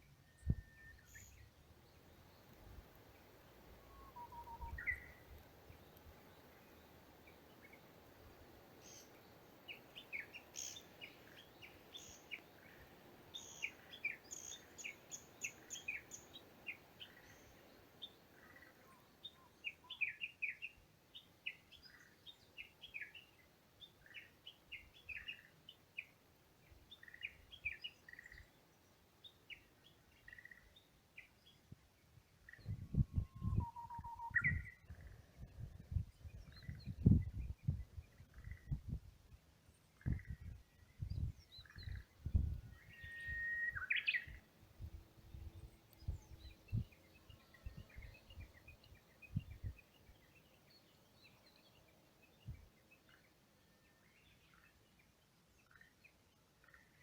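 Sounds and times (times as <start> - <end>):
birds chirping: 0.4 - 26.2, 41.2 - 57.0.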